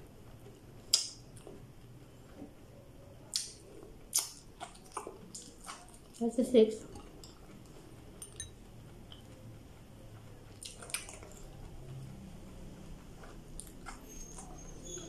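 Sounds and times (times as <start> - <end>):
person chewing: 0.8 - 1.6, 3.2 - 6.2, 6.8 - 9.4, 10.5 - 12.0, 13.2 - 14.7.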